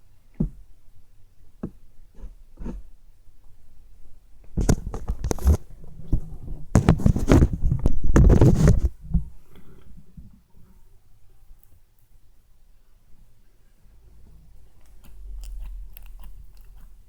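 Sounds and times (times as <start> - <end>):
slime squelching and crackling: 14.7 - 17.0.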